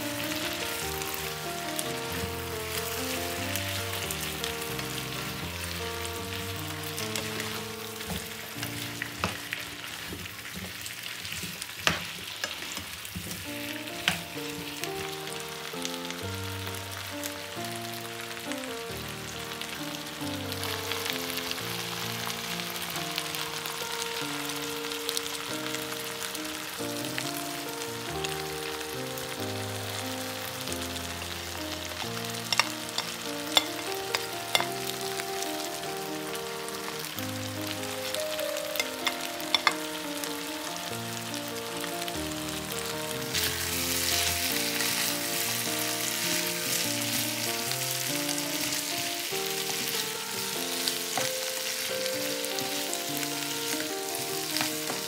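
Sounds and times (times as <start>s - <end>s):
background music: 0.0s - 11.2s, 12.5s - 55.0s
vegetables sizzling in a frying pan: 0.0s - 55.0s
spatula tapping plate and pan: 32.5s - 34.8s, 38.8s - 39.8s.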